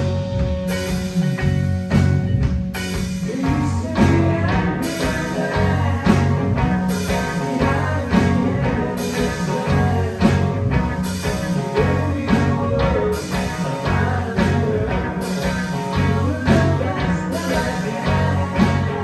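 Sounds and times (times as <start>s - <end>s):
drum kit: 0.0s - 19.0s
electric guitar: 0.0s - 19.0s
live band playing: 0.0s - 19.0s
low bass notes: 0.0s - 19.0s.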